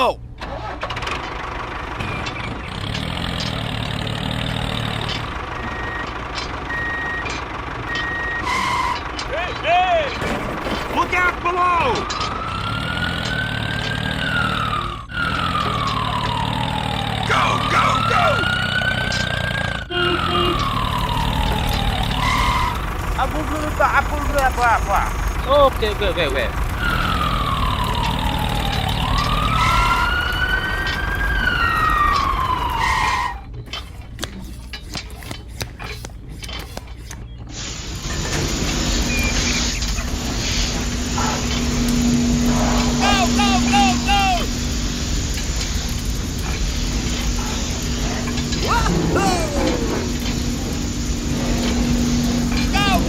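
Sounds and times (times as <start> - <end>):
low engine hum: 0.2 - 53.0
wailing fire truck siren: 2.9 - 10.2, 10.8 - 33.9, 37.8 - 53.0
whistle-like sliding tone: 6.7 - 9.6, 17.8 - 22.9, 26.8 - 36.0
low rumble: 37.4 - 53.0.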